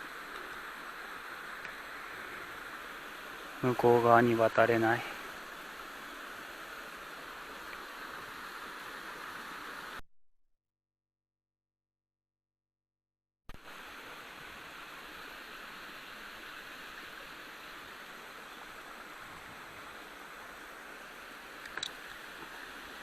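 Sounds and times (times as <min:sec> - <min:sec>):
water rushing down a slope: 0:00.0 - 0:10.0, 0:13.6 - 0:23.0
faint clicks: 0:01.6 - 0:01.8, 0:21.6 - 0:22.6.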